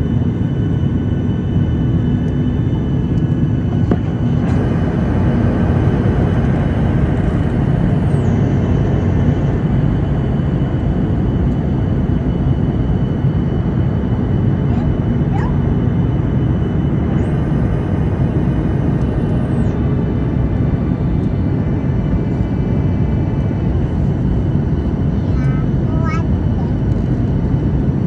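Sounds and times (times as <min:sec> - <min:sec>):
faint high whine: 0:00.0 - 0:11.9, 0:13.2 - 0:22.5
jet engine roar in cabin: 0:00.0 - 0:28.0.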